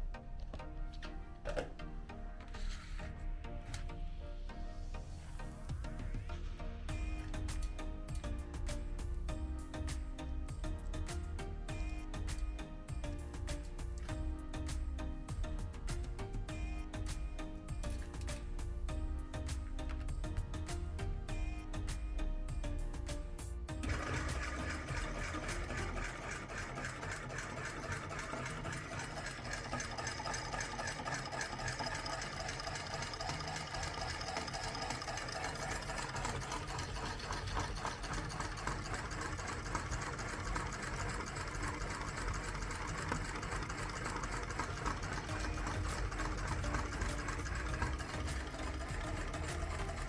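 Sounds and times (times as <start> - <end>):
meat grinder rattling: 23.8 - 50.0.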